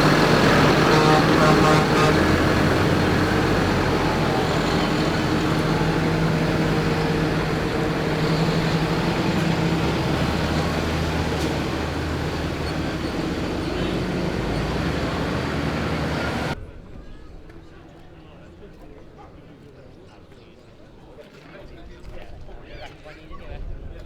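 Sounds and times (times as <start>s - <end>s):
tractor engine droning: 0.0s - 16.6s.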